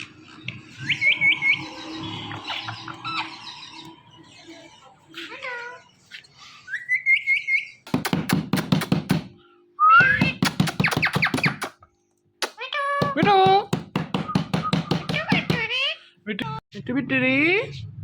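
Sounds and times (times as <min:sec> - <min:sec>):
parrot chirping: 0:00.0 - 0:08.2, 0:10.0 - 0:11.8.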